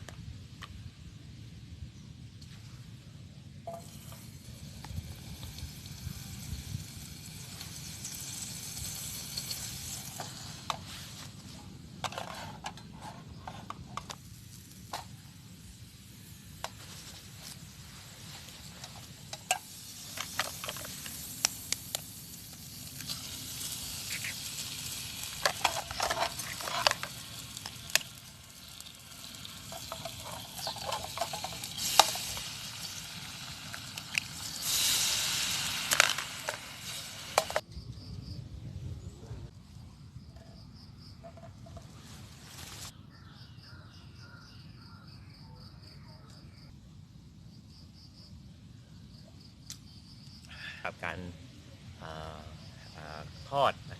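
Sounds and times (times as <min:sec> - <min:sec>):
eggs sizzling in a pan: 0:03.7 - 0:12.6, 0:13.4 - 0:37.6
utensil scraping a pan: 0:12.0 - 0:14.2, 0:25.2 - 0:33.0.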